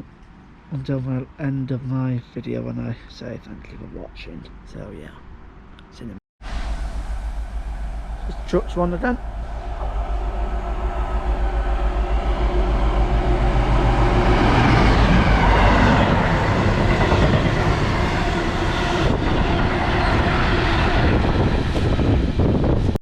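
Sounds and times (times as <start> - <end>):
freight train rattling rumble: 6.4 - 23.0.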